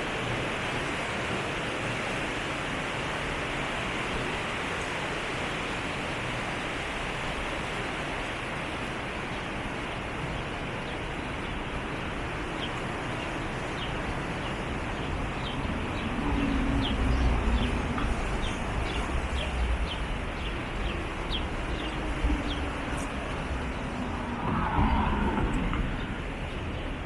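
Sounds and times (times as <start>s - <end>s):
river water rushing: 0.0s - 27.0s
passing vehicle rumble: 15.1s - 27.0s.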